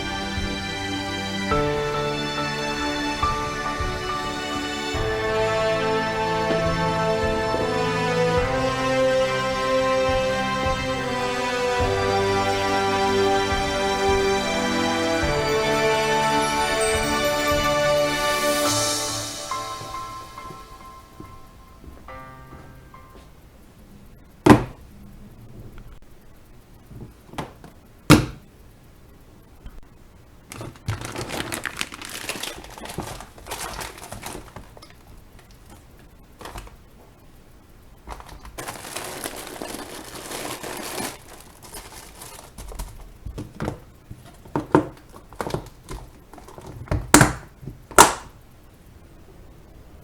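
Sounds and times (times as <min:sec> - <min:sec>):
rustling and crinkling: 0:00.0 - 0:08.8, 0:30.5 - 0:37.2, 0:38.0 - 0:48.3.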